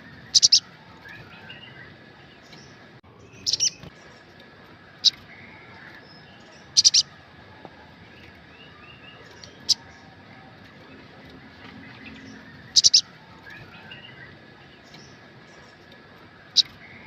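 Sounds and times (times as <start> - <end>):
bird chirping sharply: 0.0 - 4.3, 5.0 - 7.1, 11.8 - 15.8
soft bird twittering: 0.0 - 17.0.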